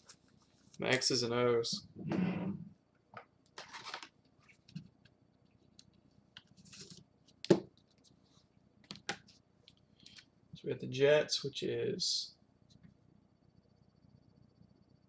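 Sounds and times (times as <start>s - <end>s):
paper rustling: 3.6s - 4.8s, 6.4s - 7.0s.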